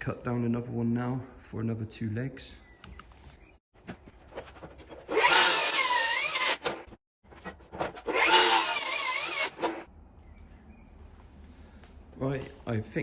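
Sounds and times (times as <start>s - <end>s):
power tool cutting wood: 5.1s - 6.8s, 8.0s - 9.9s.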